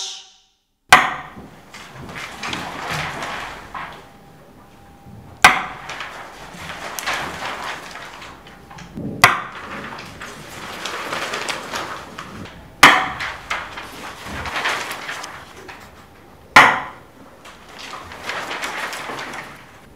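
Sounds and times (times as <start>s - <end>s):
loud sharp ringing knocks: 0.9s - 1.6s, 5.4s - 6.0s, 9.2s - 9.6s, 12.8s - 13.3s, 16.6s - 17.1s
soft rustling: 1.5s - 16.3s, 17.2s - 19.9s.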